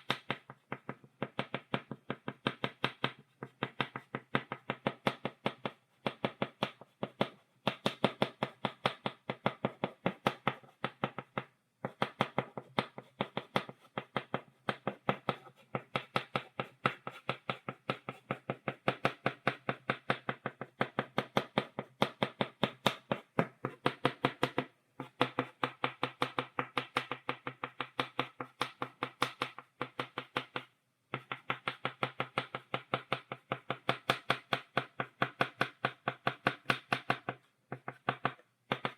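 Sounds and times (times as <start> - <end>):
chalk tapping on blackboard: 0.0 - 38.9.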